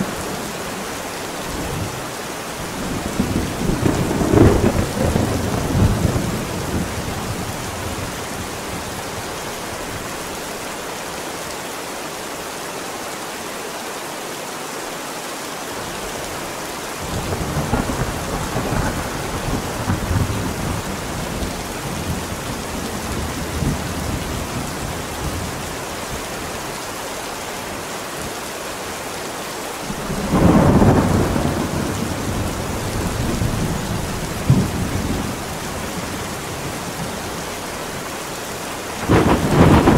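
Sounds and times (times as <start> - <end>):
steady rain: 0.0 - 39.9
rolling thunder: 2.7 - 9.0, 17.1 - 25.4, 29.9 - 37.1, 39.0 - 39.9.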